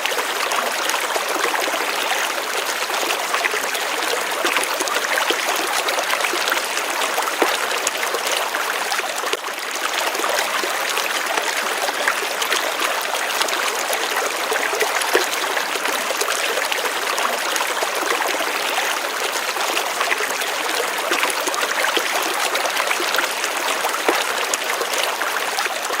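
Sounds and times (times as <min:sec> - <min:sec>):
stream trickling and splashing: 0:00.0 - 0:26.0.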